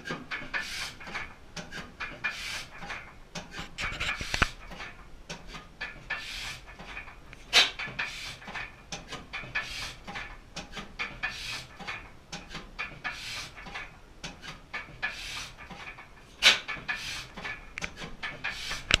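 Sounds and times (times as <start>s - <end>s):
gas engine mechanical clicks: 15.7s - 19.0s.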